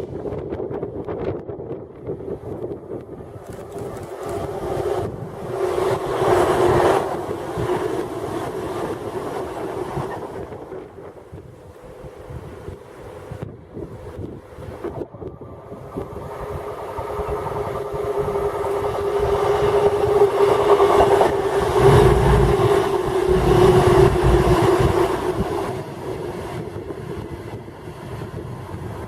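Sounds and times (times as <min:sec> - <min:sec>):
train passing: 0:01.9 - 0:29.0.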